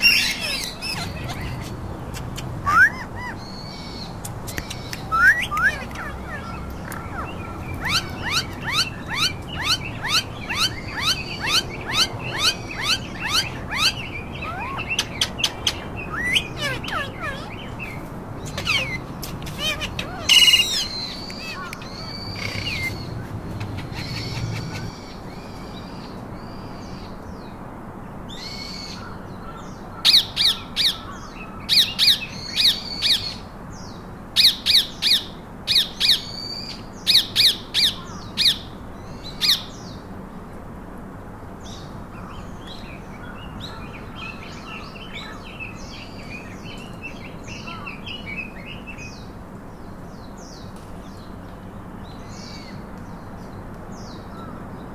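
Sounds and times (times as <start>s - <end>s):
parakeets calling sharply: 0.0s - 25.2s
parakeets chattering chirps: 0.0s - 27.0s.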